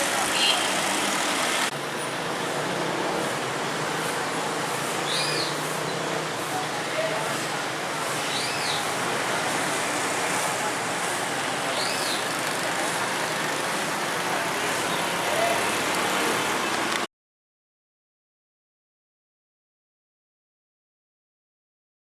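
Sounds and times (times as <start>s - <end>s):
rainy street hiss: 0.0s - 17.1s.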